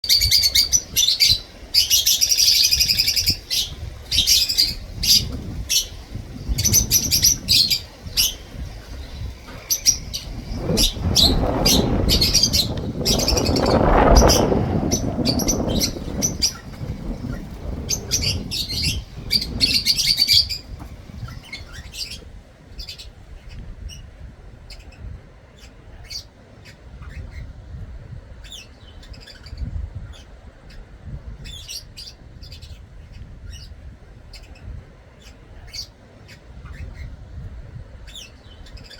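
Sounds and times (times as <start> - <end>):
low rumbling noise: 0.0 - 23.2
lovebirds chattering: 0.0 - 27.6.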